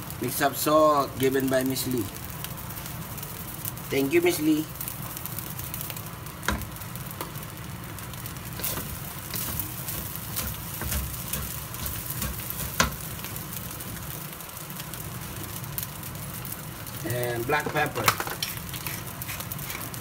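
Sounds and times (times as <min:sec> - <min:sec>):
fried rice sizzling in a pan: 0:00.0 - 0:20.0
spatula stirring and tossing rice: 0:04.8 - 0:16.5, 0:17.6 - 0:20.0.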